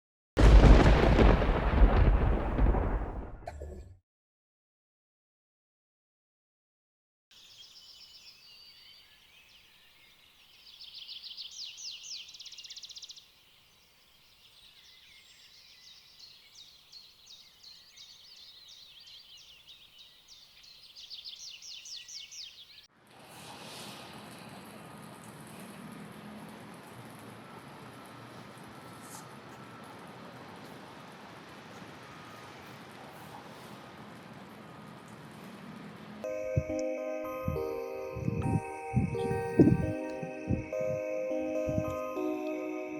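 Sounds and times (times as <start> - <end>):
songbirds singing: 7.3 - 22.9.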